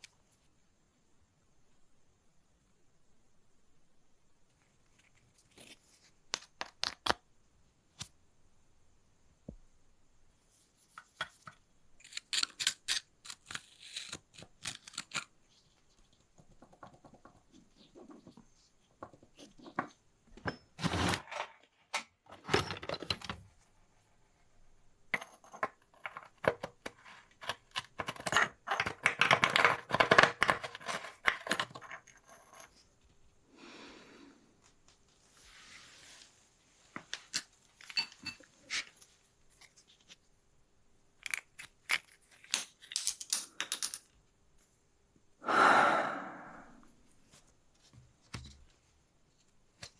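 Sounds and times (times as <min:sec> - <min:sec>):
metal tools clinking and scraping: 0:37.4 - 0:39.1.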